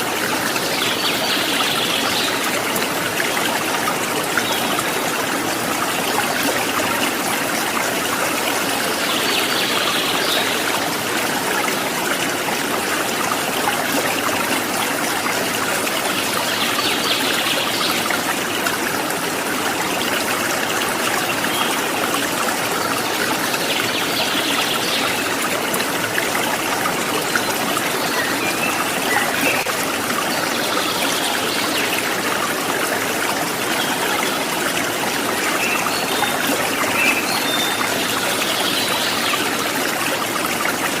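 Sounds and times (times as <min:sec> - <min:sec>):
water babbling over stones: 0:00.0 - 0:41.0.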